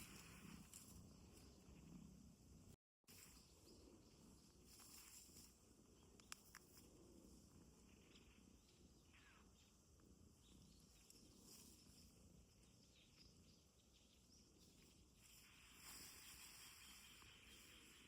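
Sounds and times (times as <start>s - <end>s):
soft clicks: 6.1s - 6.9s.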